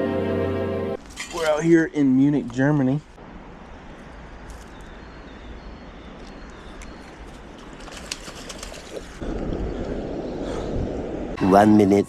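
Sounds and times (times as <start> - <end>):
outdoor background hiss: 1.0 - 7.8
birds calling: 3.6 - 11.4.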